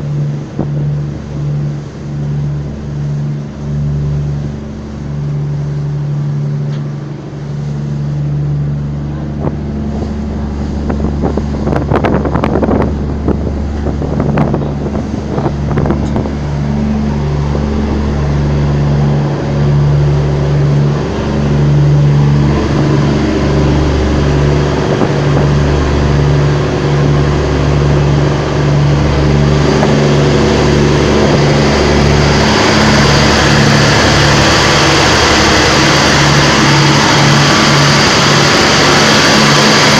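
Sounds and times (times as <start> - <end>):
engine humming: 0.0 - 39.9.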